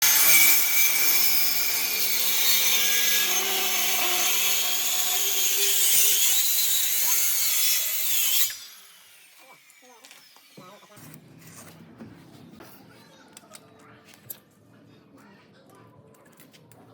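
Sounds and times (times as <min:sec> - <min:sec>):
woodworking tool cutting wood: 0:00.0 - 0:11.2.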